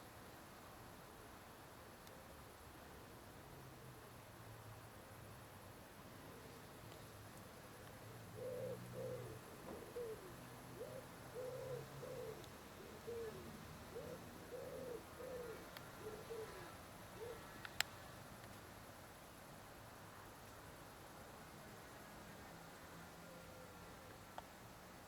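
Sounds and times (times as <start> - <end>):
pigeon cooing: 8.4 - 17.6.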